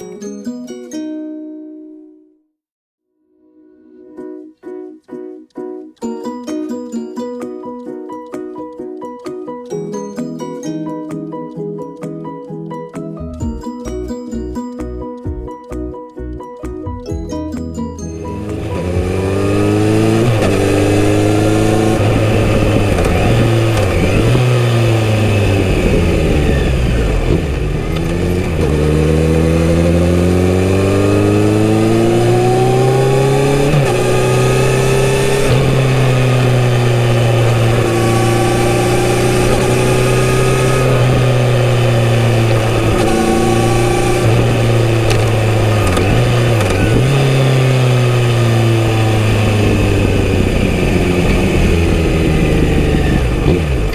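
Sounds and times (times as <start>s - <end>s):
motorcycle engine accelerating: 18.0s - 53.9s.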